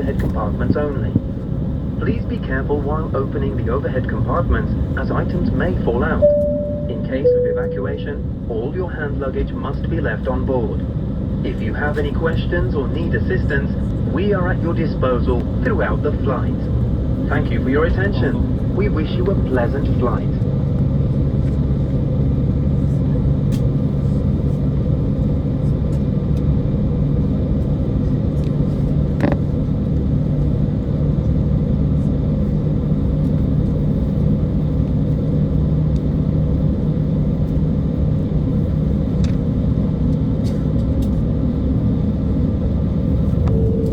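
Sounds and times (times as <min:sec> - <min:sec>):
jet engines cabin rumble: 0:00.0 - 0:43.9.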